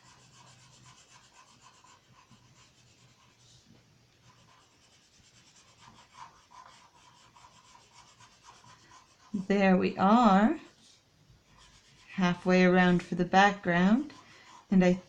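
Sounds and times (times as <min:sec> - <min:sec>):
marker rubbing on plastic sheet: 0:00.0 - 0:03.6, 0:04.2 - 0:09.5, 0:11.6 - 0:12.5.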